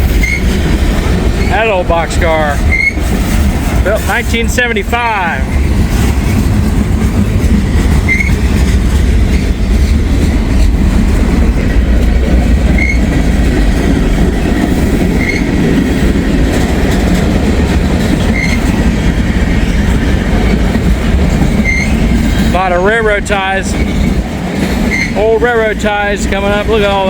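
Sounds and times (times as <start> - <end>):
high wheel squeaks: 0.0 - 1.7, 2.5 - 4.2, 5.5 - 10.9, 12.7 - 13.2, 14.6 - 15.6, 18.0 - 22.6, 23.7 - 25.3
train wheels rumbling on rail: 0.0 - 27.0.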